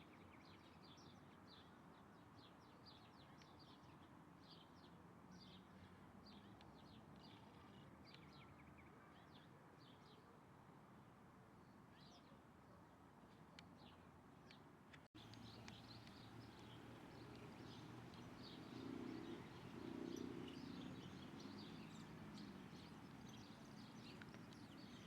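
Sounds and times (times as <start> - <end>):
faint birds chirping: 15.2 - 25.0
low background hiss: 15.2 - 25.0.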